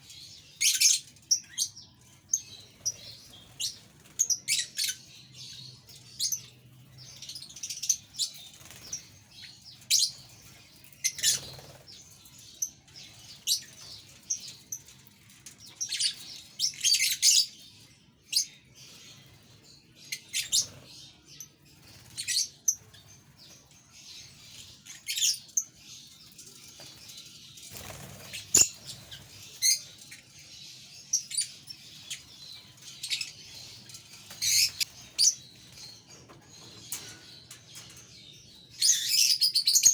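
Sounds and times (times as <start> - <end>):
budgerigars chirping: 27.8 - 29.9, 31.2 - 37.1.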